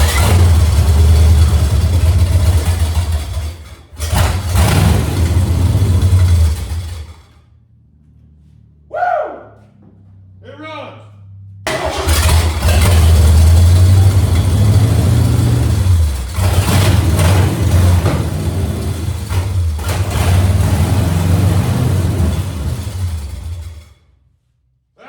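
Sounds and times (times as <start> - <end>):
loud engine running unmuffled: 0.0 - 7.4, 11.4 - 23.9.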